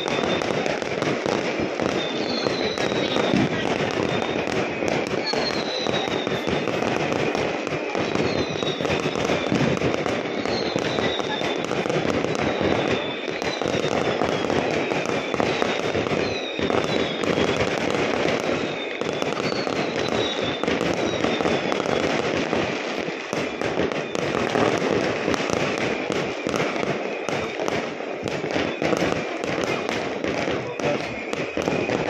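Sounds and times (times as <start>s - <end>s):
fireworks descending whistles: 0.0s - 32.0s
fireworks popping and crackling: 0.0s - 32.0s.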